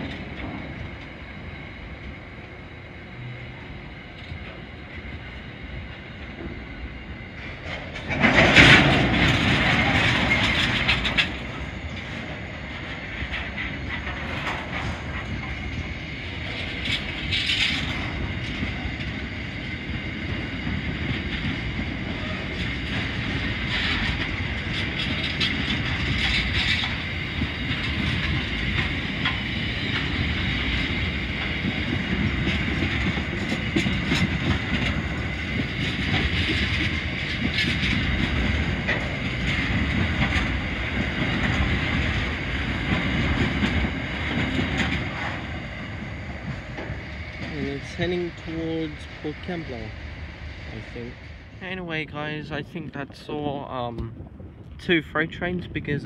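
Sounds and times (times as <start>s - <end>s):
freight train rumbling past: 0.0s - 56.0s
wheels clicking over rail joints: 7.4s - 19.2s, 20.6s - 49.5s.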